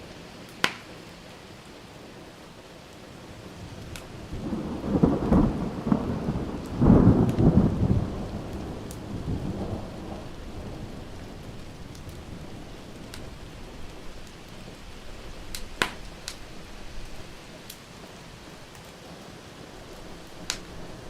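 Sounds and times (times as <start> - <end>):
steady rain: 0.0 - 21.0
wood fire crackling: 0.0 - 21.0
rolling thunder: 3.4 - 17.3, 19.8 - 21.0.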